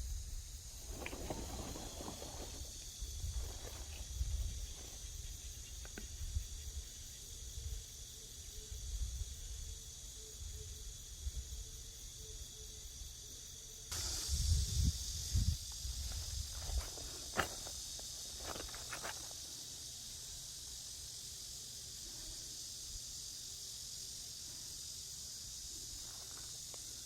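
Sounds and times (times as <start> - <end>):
insects chirring: 0.0 - 27.0
wind on microphone: 13.9 - 17.0.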